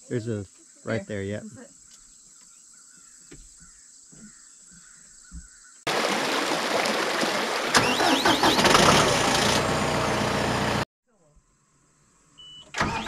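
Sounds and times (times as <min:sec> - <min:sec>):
insects chirring: 0:00.0 - 0:05.8
tractor engine running: 0:07.7 - 0:10.8, 0:12.8 - 0:13.0.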